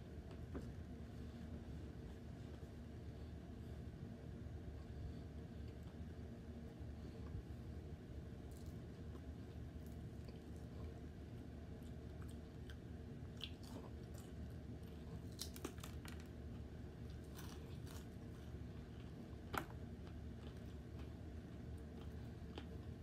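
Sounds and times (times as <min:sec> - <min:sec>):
chewing with crisp crunches: 0:08.4 - 0:23.0.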